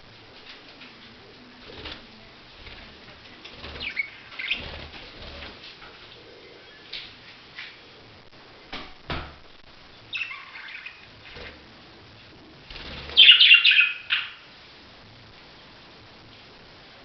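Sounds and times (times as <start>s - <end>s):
budgerigars chirping: 3.8s - 4.8s, 10.1s - 11.5s, 13.1s - 14.4s.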